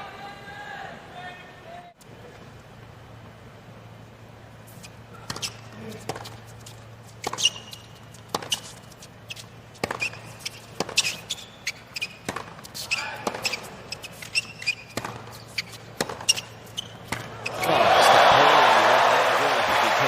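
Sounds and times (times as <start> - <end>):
shoes squeaking on court: 4.6 - 18.3
tennis ball bouncing: 4.7 - 17.7
racket striking ball: 5.2 - 6.4, 7.2 - 8.8, 9.8 - 17.7.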